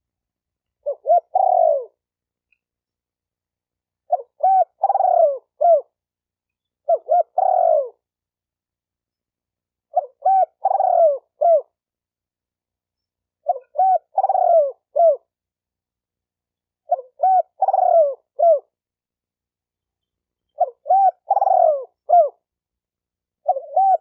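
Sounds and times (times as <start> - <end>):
dove cooing: 0.8 - 2.0, 4.0 - 6.0, 6.8 - 8.1, 9.9 - 11.8, 13.4 - 15.3, 16.8 - 18.8, 20.5 - 22.5, 23.4 - 24.0.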